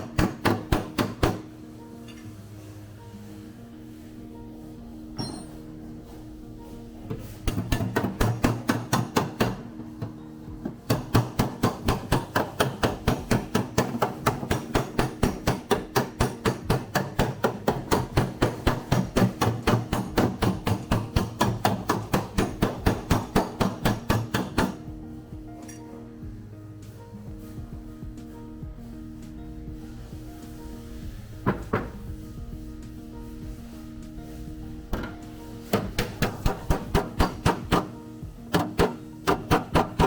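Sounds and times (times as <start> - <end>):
background music: 0.0 - 40.0
hammer striking steel panel: 7.4 - 9.7, 10.9 - 24.8, 34.9 - 40.0.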